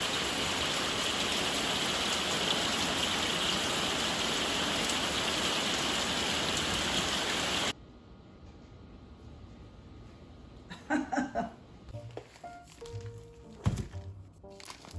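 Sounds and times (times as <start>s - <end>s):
rain falling: 0.0s - 7.7s.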